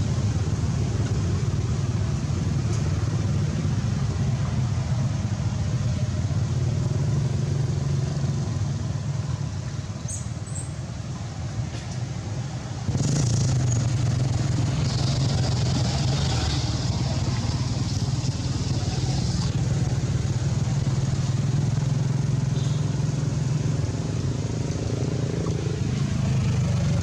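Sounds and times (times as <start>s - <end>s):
high hiss: 13.0s - 24.0s.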